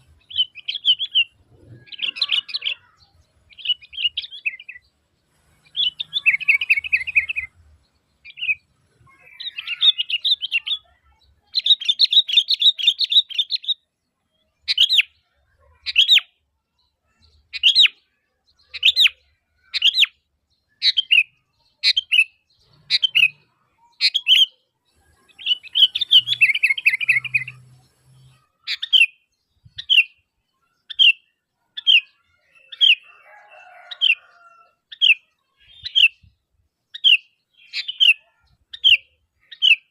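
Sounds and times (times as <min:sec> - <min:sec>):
bird chattering: 0:00.0 - 0:04.8, 0:05.5 - 0:07.6, 0:08.2 - 0:13.8, 0:17.2 - 0:20.2, 0:20.8 - 0:33.1, 0:36.9 - 0:39.9.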